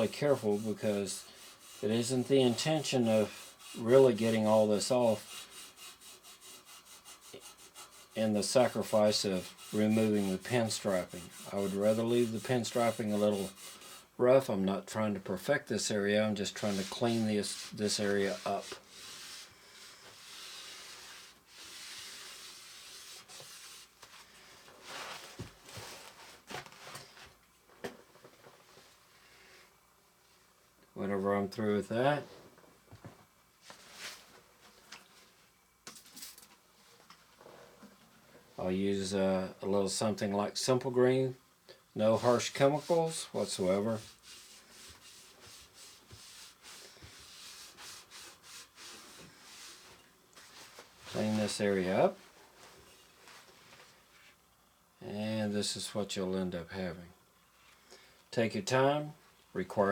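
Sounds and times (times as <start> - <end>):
scrubbing metal rim: 0.0 - 14.1, 16.4 - 23.9.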